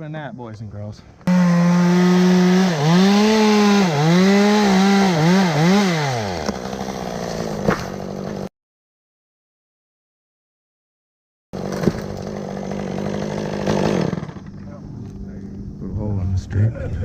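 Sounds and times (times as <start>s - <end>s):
chainsaw bogging in a cut: 1.3s - 8.5s, 11.6s - 14.6s.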